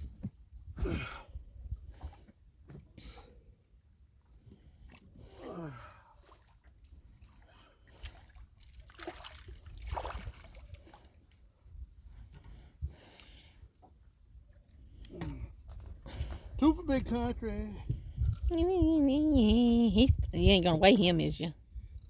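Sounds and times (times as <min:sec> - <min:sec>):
water sloshing against boat hull: 0:00.0 - 0:16.7.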